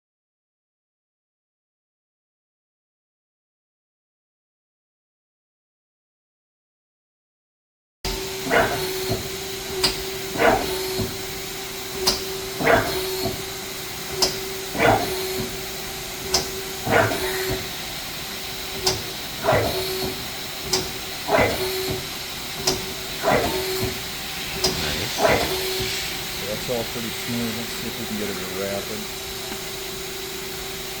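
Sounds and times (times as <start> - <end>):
lathe humming with hiss: 8.1 - 31.0
lathe slide swishing: 11.9 - 17.9, 18.8 - 26.7.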